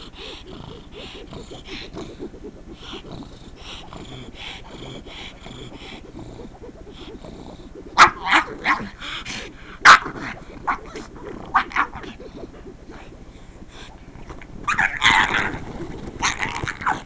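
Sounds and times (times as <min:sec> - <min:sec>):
dog barking and yipping: 0:08.0 - 0:09.0, 0:09.8 - 0:11.0, 0:11.6 - 0:12.1, 0:14.7 - 0:15.5.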